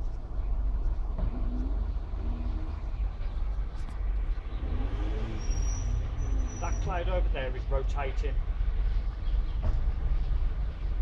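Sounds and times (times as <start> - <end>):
faint voices: 1.2 - 5.4.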